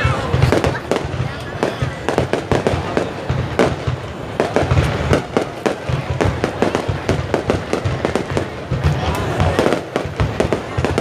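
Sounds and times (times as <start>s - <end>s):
deep fireworks booms: 0.0s - 11.0s
fireworks bangs and cracks: 0.0s - 11.0s.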